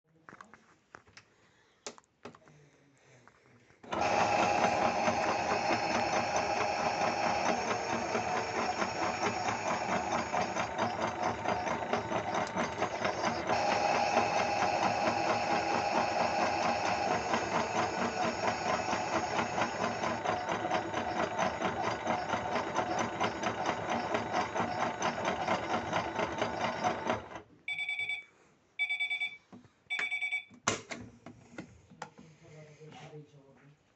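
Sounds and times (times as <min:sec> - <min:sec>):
toy washing machine motor buzzing: 0:03.8 - 0:27.4
short beeps: 0:27.7 - 0:30.5.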